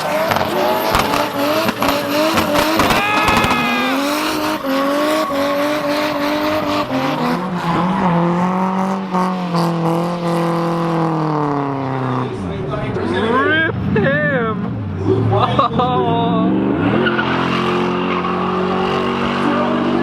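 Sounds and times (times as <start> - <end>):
car engines revving: 0.0 - 20.0
tyres squealing: 0.5 - 8.1.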